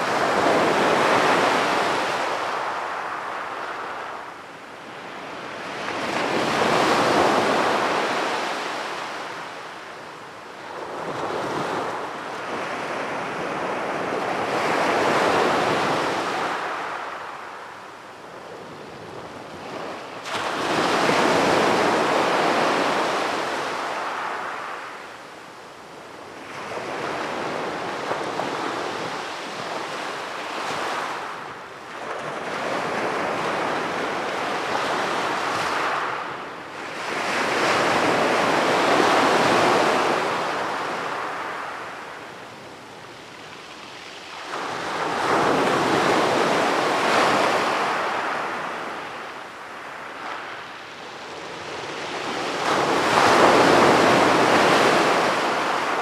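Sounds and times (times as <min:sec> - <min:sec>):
sea waves breaking on beach: 0:00.0 - 0:04.3, 0:19.5 - 0:25.0, 0:26.4 - 0:56.0.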